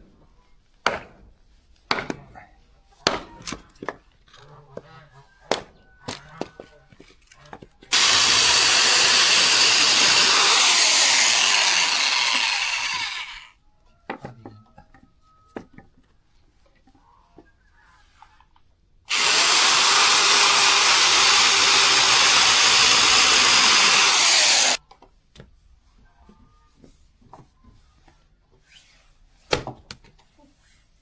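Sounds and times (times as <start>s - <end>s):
power saw cutting wood: 7.9s - 13.5s, 19.1s - 24.8s.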